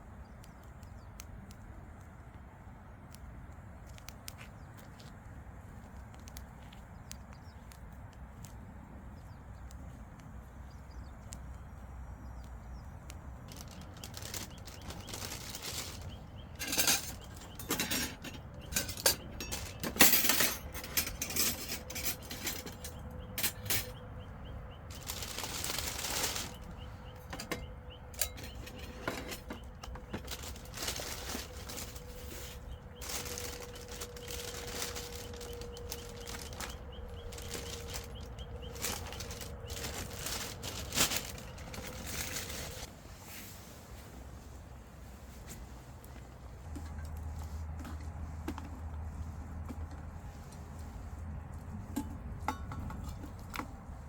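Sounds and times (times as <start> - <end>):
clicks and knocks of objects handled: 3.0 - 5.2, 5.9 - 8.6, 12.4 - 24.1, 24.9 - 42.9, 46.0 - 50.6, 51.5 - 53.8.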